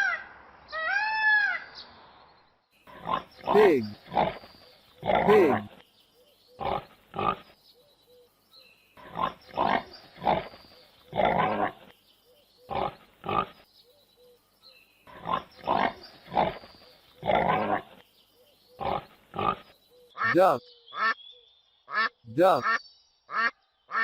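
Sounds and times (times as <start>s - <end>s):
pig grunting: 2.9s - 4.4s, 5.0s - 5.8s, 6.6s - 7.4s, 9.0s - 10.5s, 11.1s - 11.8s, 12.7s - 13.6s, 15.1s - 16.6s, 17.2s - 18.0s, 18.8s - 19.6s.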